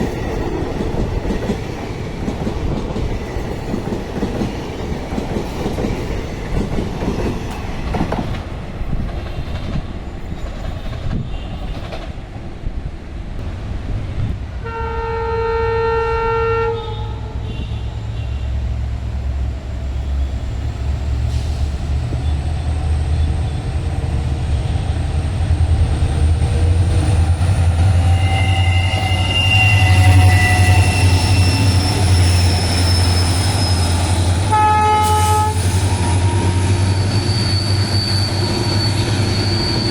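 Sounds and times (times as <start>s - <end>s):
train wheels rattling over rails: 0.0s - 12.7s
locomotive horn: 14.6s - 18.6s, 28.1s - 32.7s, 33.9s - 36.7s.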